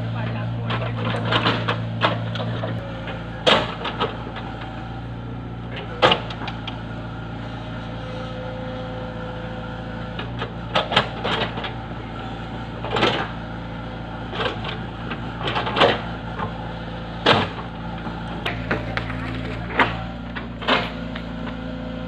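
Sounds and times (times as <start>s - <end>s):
heavy machine engine running: 0.0s - 22.0s
sharp knocks and clanks: 0.7s - 2.8s, 3.4s - 4.2s.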